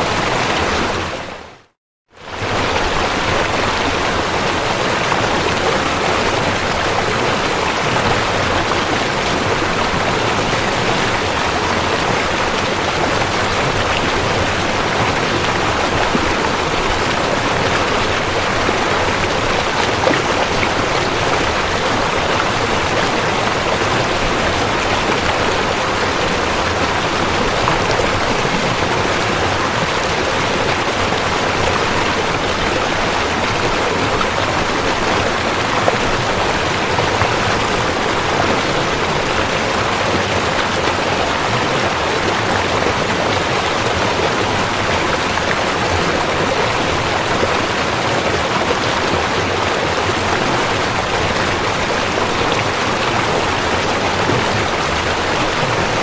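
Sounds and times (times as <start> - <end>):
river water rushing: 0.0 - 1.6, 2.2 - 56.0.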